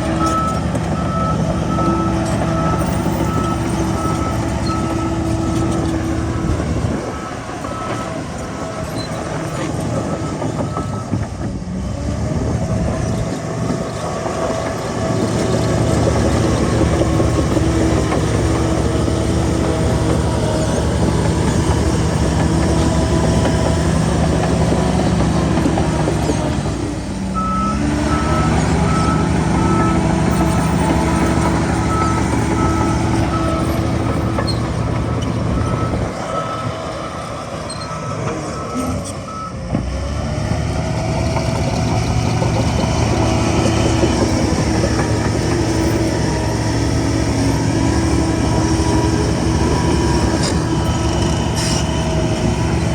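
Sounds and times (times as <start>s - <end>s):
heavy diesel machinery running: 0.0s - 52.9s.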